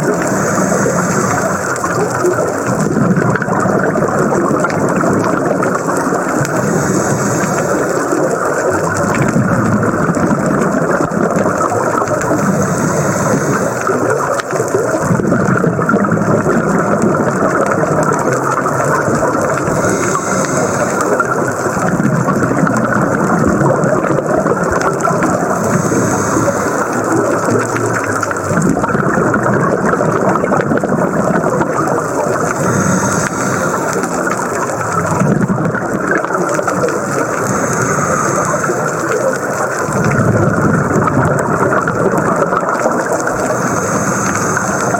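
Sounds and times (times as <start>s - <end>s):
diver regulator breathing hiss: 0.0s - 2.9s, 4.8s - 9.3s, 12.0s - 15.1s, 18.2s - 22.7s, 24.7s - 29.4s, 30.9s - 41.2s, 42.8s - 44.9s
underwater rushing rumble: 0.0s - 44.9s.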